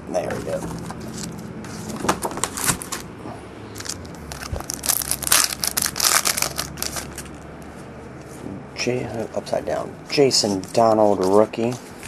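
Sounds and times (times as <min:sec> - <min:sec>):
card pack wrappers crinkling: 0:00.3 - 0:03.1, 0:03.8 - 0:07.4.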